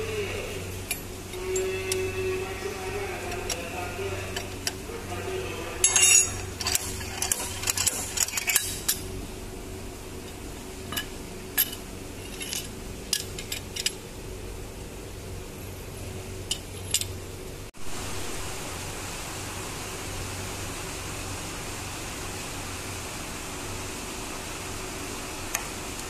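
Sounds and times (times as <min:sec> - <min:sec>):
steady low hum: 0:00.0 - 0:26.0
metal tools clinking and clattering: 0:05.8 - 0:09.0, 0:10.9 - 0:14.0.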